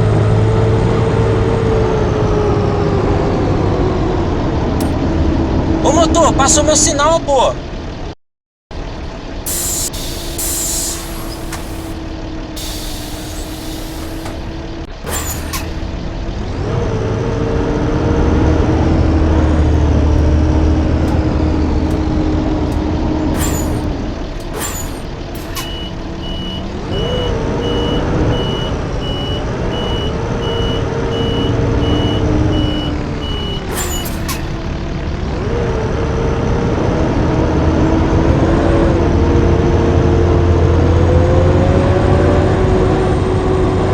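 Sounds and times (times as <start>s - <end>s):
bus diesel engine: 0.0s - 43.9s
air brake hisses: 9.5s - 15.9s, 21.0s - 34.8s
steady beeps: 21.1s - 34.5s.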